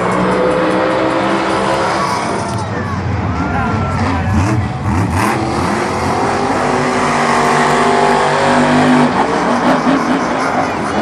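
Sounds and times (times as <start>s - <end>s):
monster truck engine revving: 0.0s - 11.0s.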